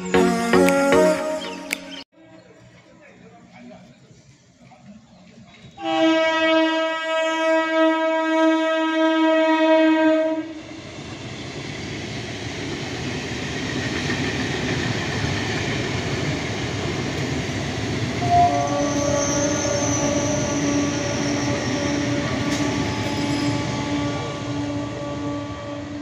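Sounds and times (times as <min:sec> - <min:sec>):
train horn blast: 0:05.8 - 0:10.6, 0:18.2 - 0:26.0
train passing at speed: 0:08.6 - 0:26.0.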